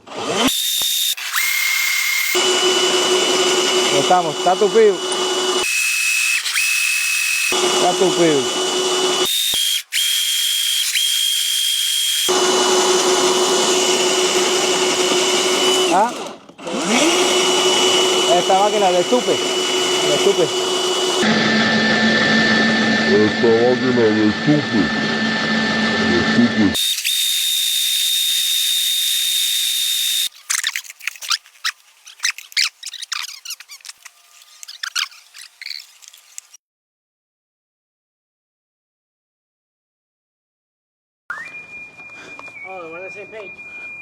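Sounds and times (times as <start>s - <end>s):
small electric motor whining: 0.0s - 36.6s
short squeaks: 30.3s - 36.4s.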